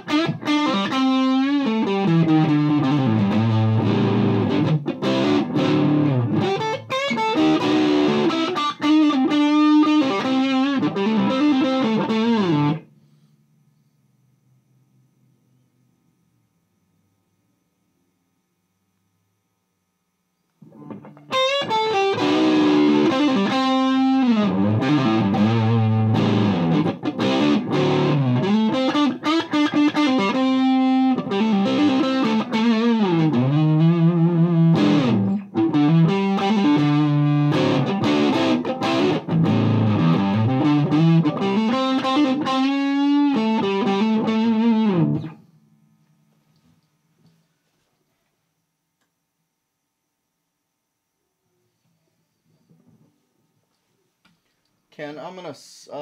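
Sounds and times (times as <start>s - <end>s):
overdriven electric guitar: 0.0s - 12.9s, 20.6s - 45.5s.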